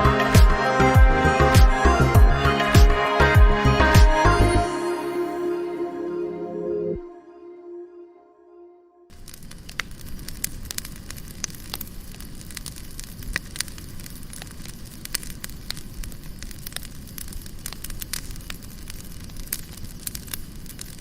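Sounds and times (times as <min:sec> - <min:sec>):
fire crackling and popping: 0:09.1 - 0:21.0
fire rumbling: 0:09.1 - 0:21.0.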